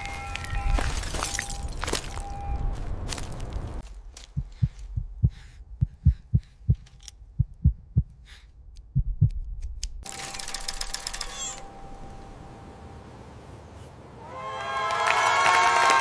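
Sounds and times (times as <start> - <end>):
heartbeat thuds: 3.8 - 10.0.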